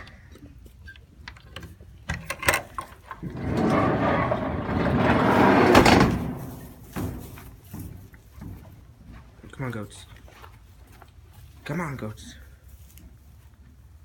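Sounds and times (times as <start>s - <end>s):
sliding door rolling on track: 3.1s - 7.3s
door bang: 3.3s - 7.4s.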